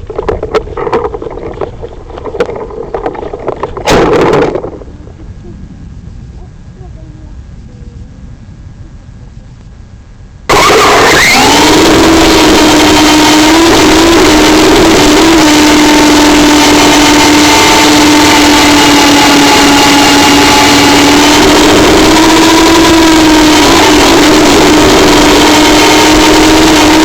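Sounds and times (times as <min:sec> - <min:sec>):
model helicopter motor whine: 0:10.5 - 0:27.0.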